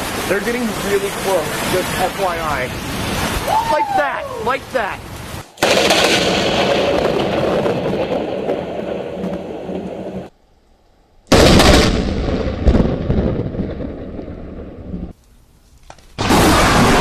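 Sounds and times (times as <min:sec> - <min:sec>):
thunderclaps: 0:04.9 - 0:10.3, 0:11.3 - 0:15.2.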